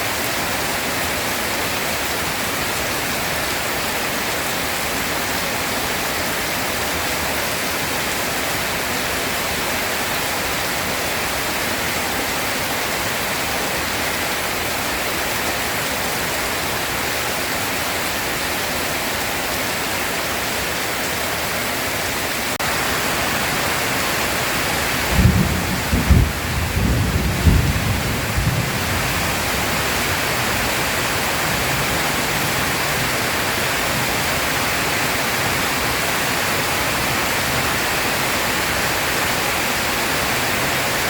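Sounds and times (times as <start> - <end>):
heavy rain: 0.0 - 41.0
low thunder rumble: 25.0 - 30.0.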